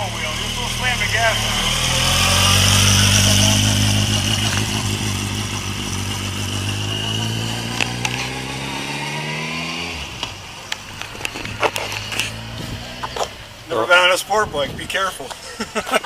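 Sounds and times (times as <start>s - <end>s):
motorcycle pulling away: 0.0s - 13.8s.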